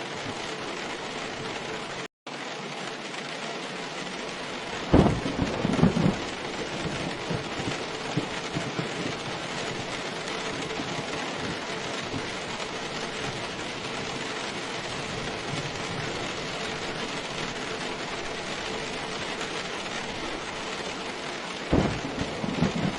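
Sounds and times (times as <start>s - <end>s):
heavy rain: 0.0s - 22.9s
thunder clap and rumble: 4.0s - 22.9s.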